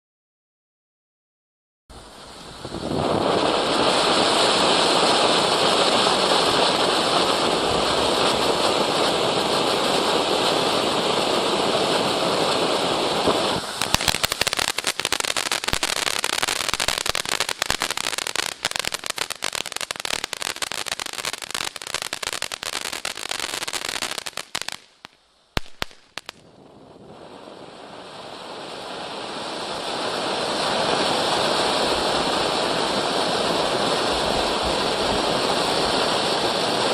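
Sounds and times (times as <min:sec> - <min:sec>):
firework crackling: 0:02.0 - 0:36.9
firework fountain hissing: 0:02.0 - 0:36.9
sharp pops: 0:13.6 - 0:20.6, 0:24.4 - 0:26.5.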